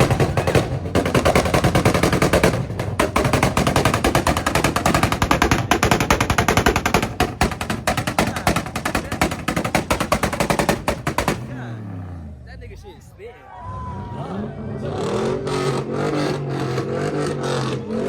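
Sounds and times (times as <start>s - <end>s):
car exhaust popping and crackling: 0.0s - 12.3s.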